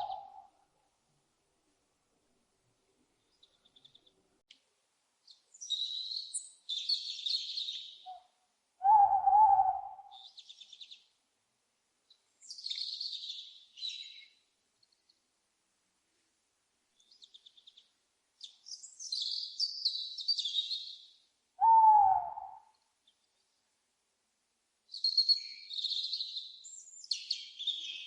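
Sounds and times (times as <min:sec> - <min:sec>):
songbirds twittering: 0:00.0 - 0:00.5, 0:05.2 - 0:11.2, 0:12.1 - 0:15.2, 0:17.0 - 0:23.6, 0:24.9 - 0:28.0
owl hooting: 0:00.0 - 0:00.6, 0:07.4 - 0:10.4, 0:21.6 - 0:22.7.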